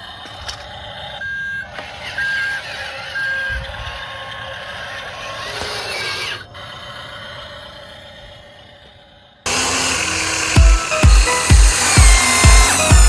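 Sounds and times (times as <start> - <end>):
electric motors whirring: 0.3 - 6.5, 9.5 - 13.0
electronic reversing beeps: 1.2 - 4.0.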